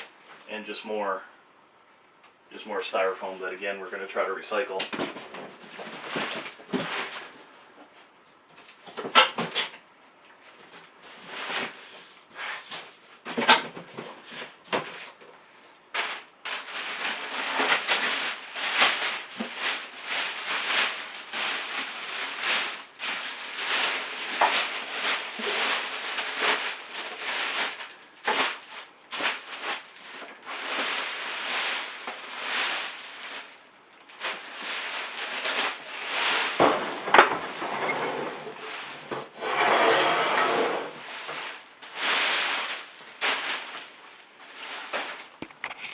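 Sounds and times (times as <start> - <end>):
styrofoam crackling and squeaking: 16.0 - 39.0, 40.9 - 45.9.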